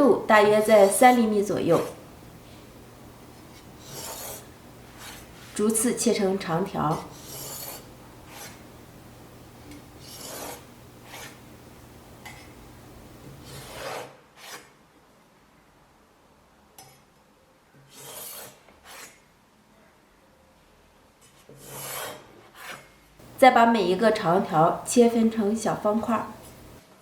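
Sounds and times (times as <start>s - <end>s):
knife slicing dough on cutting board: 3.4s - 5.6s, 6.9s - 8.6s, 10.0s - 11.4s, 13.3s - 14.6s.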